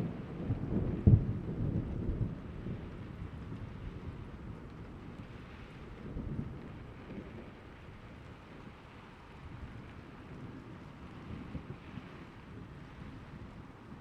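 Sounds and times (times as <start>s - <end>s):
low rumble of thunder: 0.0s - 8.8s
steady rain: 0.0s - 14.0s.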